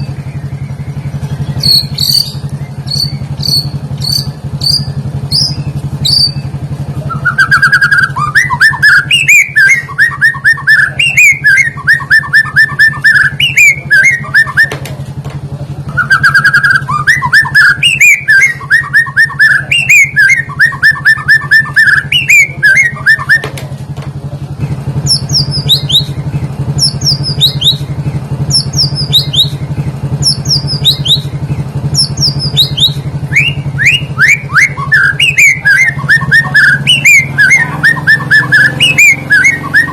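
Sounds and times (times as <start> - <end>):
rapid repeated bird chirping: 0.0 - 39.9
steady low hum: 0.0 - 39.9
high falling whistled notes: 32.0 - 39.9.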